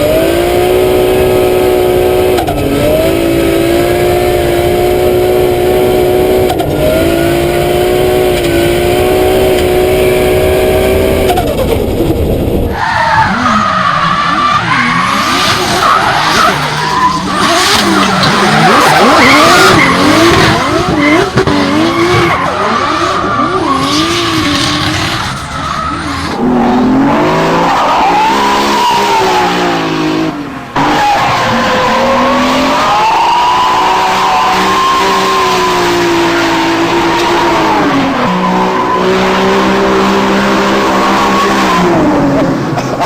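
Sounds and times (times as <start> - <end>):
car engine revving: 0.0 - 43.0
tyres squealing: 12.7 - 26.4.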